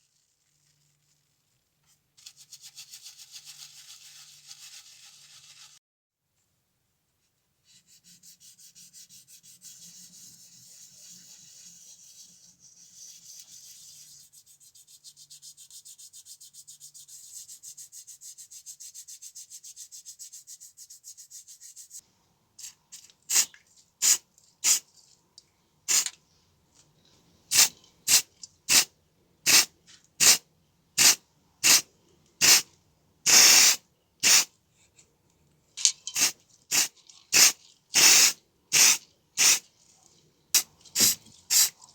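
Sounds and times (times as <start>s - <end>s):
hissing spray bursts: 23.3s - 24.8s, 25.9s - 26.1s, 27.5s - 28.9s, 29.5s - 30.4s, 31.0s - 31.8s, 32.4s - 32.6s, 33.3s - 34.5s, 36.2s - 39.6s, 41.0s - 41.7s.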